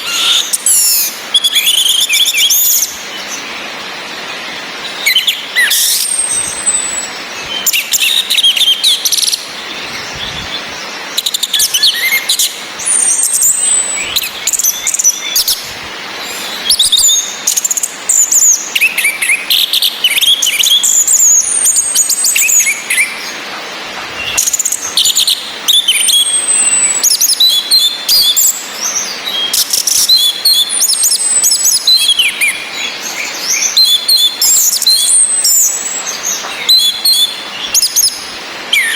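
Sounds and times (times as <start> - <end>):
bird song: 0.0 - 38.9
rain hissing: 0.0 - 38.9.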